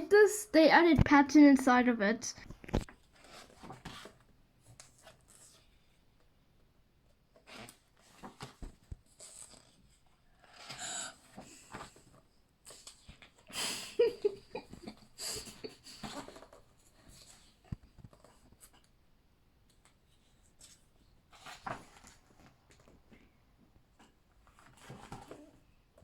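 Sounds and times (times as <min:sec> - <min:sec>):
book pages rustling: 0:02.4 - 0:06.0, 0:07.3 - 0:13.4, 0:16.0 - 0:19.0, 0:19.6 - 0:23.2, 0:23.8 - 0:26.0.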